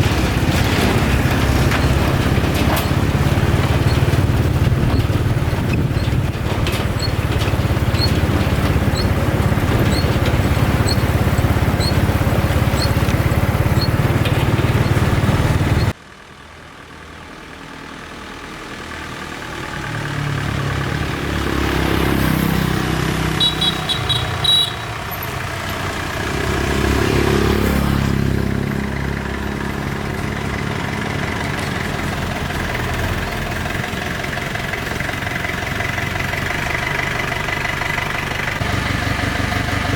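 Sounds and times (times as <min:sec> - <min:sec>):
vehicle engine rumbling: 0:00.0 - 0:39.9.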